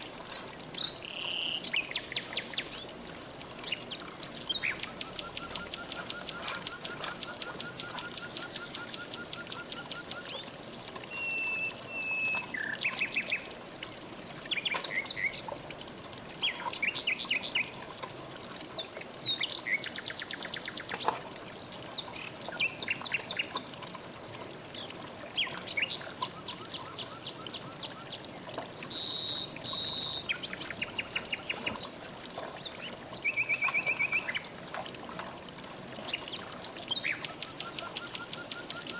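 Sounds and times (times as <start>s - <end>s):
songbirds calling and trilling: 0.0s - 3.0s, 3.6s - 18.0s, 18.7s - 23.7s, 24.7s - 34.6s, 36.0s - 38.9s
flowing stream: 0.0s - 38.9s.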